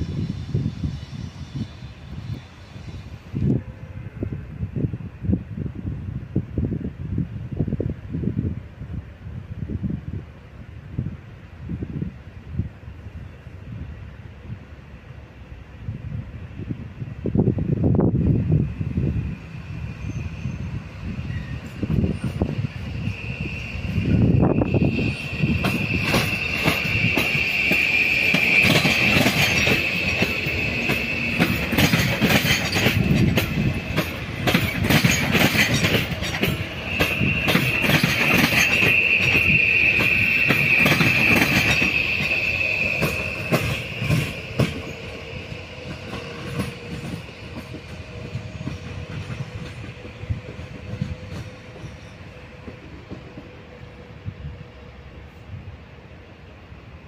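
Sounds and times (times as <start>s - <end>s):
train wheels squealing: 0.0s - 3.9s, 18.3s - 55.6s
wheels clicking over rail joints: 25.5s - 53.6s.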